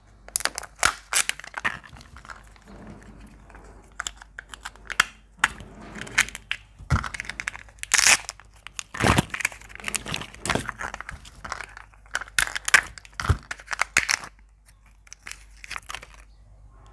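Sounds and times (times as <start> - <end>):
shells crunching and cracking: 10.8 - 16.3.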